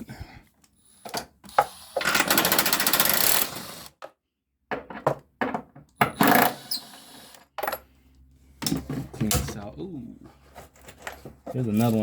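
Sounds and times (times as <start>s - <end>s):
metal tools knocking and clattering: 4.7s - 6.3s.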